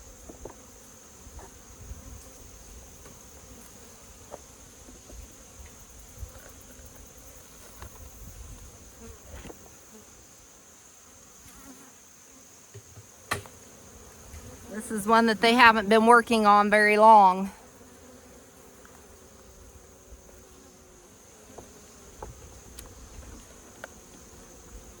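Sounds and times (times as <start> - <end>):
clicks and knocks of hive screens: 12.7 - 13.5
honeybees buzzing: 12.8 - 25.0.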